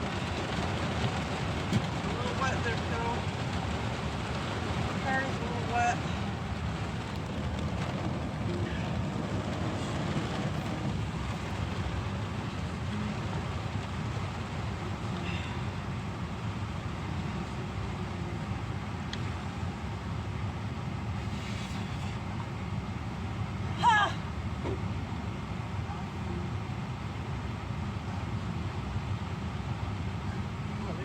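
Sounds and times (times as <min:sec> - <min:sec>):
rain falling on a car: 0:00.0 - 0:31.0.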